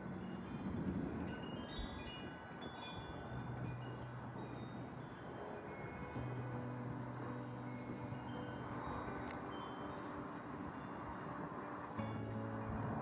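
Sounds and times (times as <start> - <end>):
chimes tinkling: 0.0 - 13.0
low sustained drone: 3.1 - 13.0.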